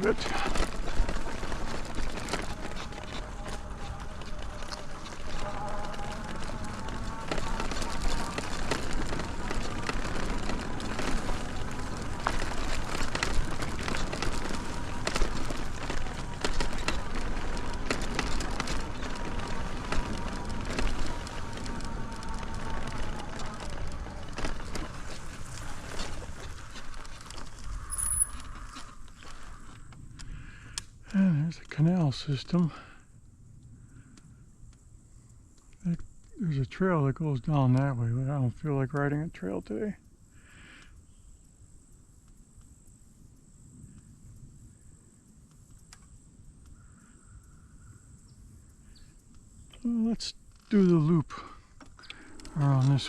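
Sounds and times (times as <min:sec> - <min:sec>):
low rumble: 0:00.0 - 0:27.9
bike tyres rolling on dirt: 0:00.0 - 0:53.0
insects trilling: 0:00.0 - 0:53.0
small crackles and clicks: 0:00.0 - 0:53.0.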